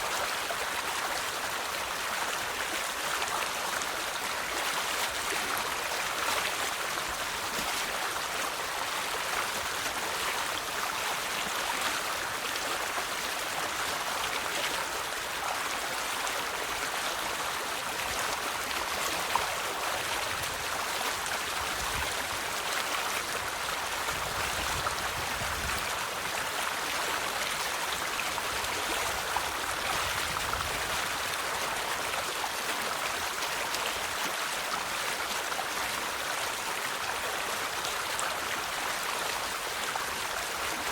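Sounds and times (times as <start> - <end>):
river water flowing over stones: 0.0 - 40.9.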